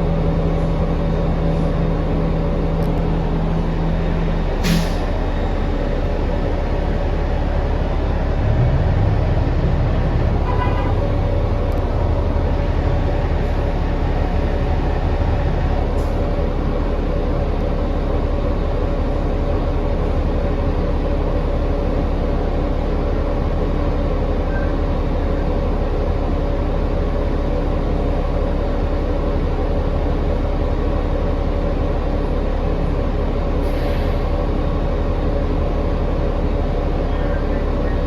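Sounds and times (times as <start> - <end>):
bus cabin drone: 0.0 - 38.0.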